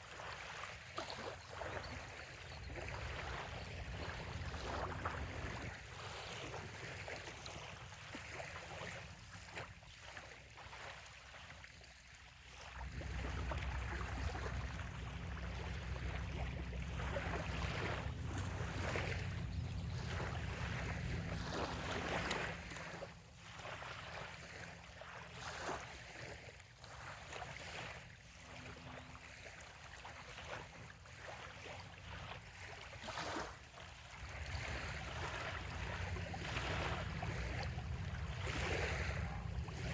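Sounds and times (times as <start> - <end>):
small waves lapping on shore: 0.0 - 39.9
wind on microphone: 1.8 - 6.8, 34.3 - 39.9.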